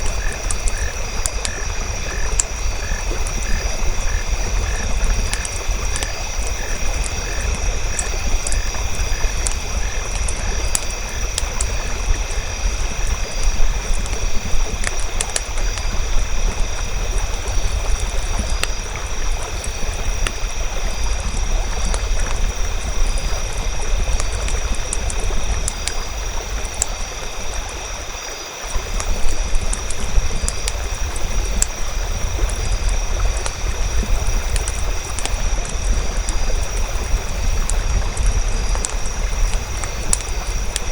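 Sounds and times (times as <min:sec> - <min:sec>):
fire crackling and popping: 0:00.0 - 0:40.9
insects trilling: 0:00.0 - 0:40.9.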